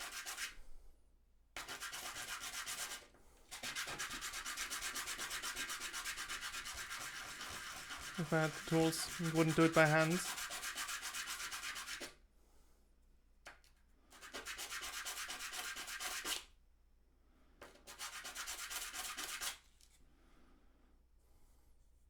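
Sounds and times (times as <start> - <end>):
hand sanding wood: 0.0 - 0.5, 1.6 - 12.1, 14.2 - 16.4, 17.9 - 19.6.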